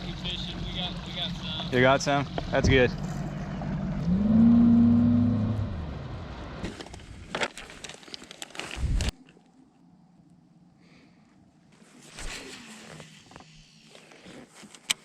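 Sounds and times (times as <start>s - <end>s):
boat engine revving: 0.0s - 6.6s.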